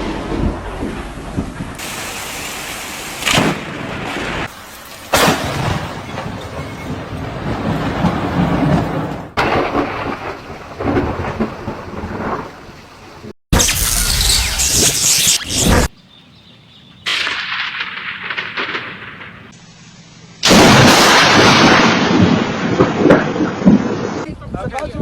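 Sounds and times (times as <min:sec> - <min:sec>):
thunder cracks: 0:00.0 - 0:12.8, 0:17.1 - 0:19.5, 0:20.4 - 0:24.3
heavy rain: 0:01.8 - 0:13.3.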